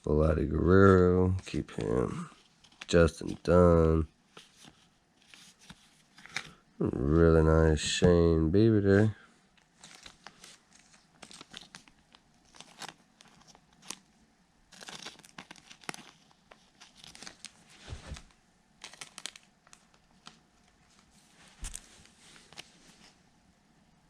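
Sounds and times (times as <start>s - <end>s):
cards clicking and rustling: 0.8s - 7.2s, 9.7s - 14.1s, 14.7s - 23.1s
foil wrapper crinkling and tearing: 9.6s - 22.7s.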